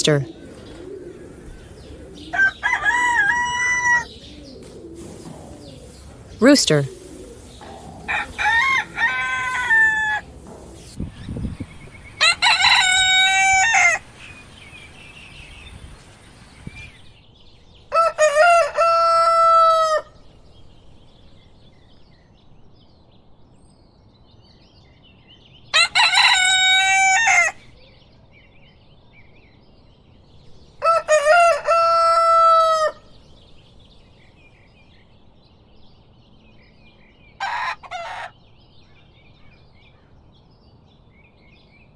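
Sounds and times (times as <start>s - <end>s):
faint bird chirps: 0.0s - 11.0s
rooster crowing: 0.3s - 11.0s, 37.4s - 38.3s.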